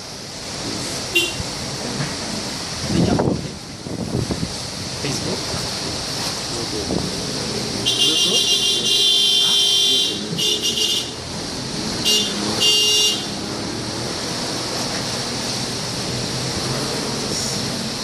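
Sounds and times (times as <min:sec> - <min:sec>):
street traffic: 0:00.0 - 0:18.0
wind: 0:00.0 - 0:18.0
vehicle horns honking: 0:01.1 - 0:01.5, 0:07.8 - 0:11.2, 0:12.0 - 0:13.4.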